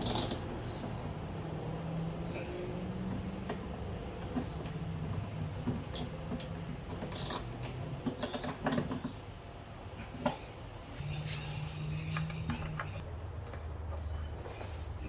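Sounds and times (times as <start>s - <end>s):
metal tools clinking: 0.0s - 0.5s, 5.8s - 8.8s.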